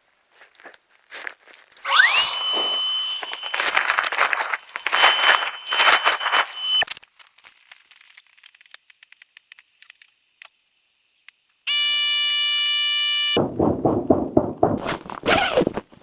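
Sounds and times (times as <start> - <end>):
loud electronic beep: 1.9 - 6.8
knocks and clatter: 13.4 - 16.0.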